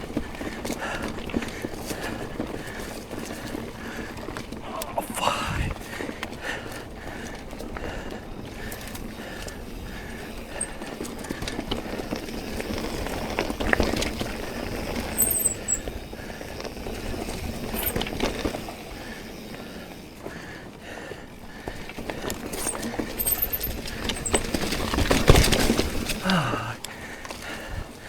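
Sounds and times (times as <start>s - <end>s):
bike chain and frame rattling: 0.0s - 4.7s, 5.8s - 28.0s
bike tyres on dirt: 0.0s - 28.0s
bike clatter: 6.1s - 27.7s.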